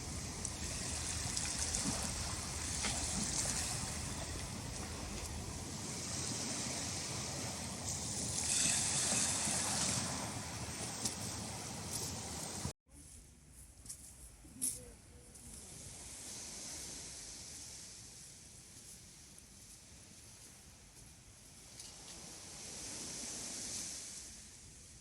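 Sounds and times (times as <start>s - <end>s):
sea waves washing ashore: 0.0s - 12.7s, 15.7s - 18.3s, 21.9s - 25.0s.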